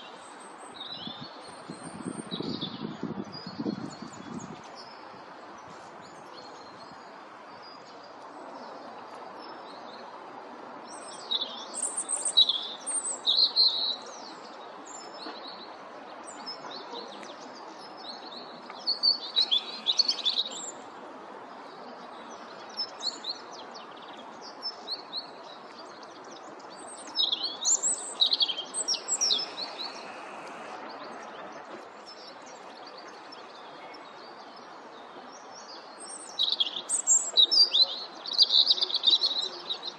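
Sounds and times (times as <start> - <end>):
steady background noise: 4.1 - 39.9
small songbirds chirping: 10.8 - 39.9.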